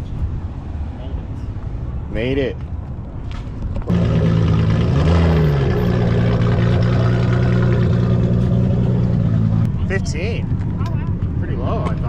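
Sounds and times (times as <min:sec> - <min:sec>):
car engine idling: 0:03.8 - 0:10.0.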